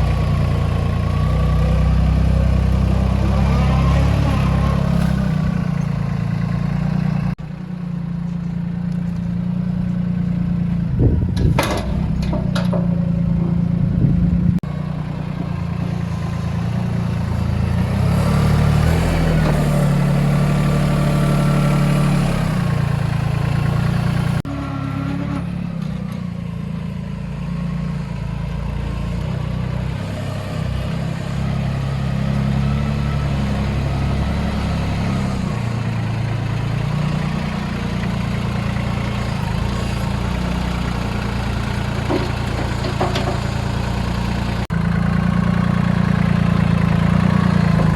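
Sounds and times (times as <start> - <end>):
tractor diesel engine running: 0.0 - 47.9
sharp metallic clanks: 11.4 - 13.7.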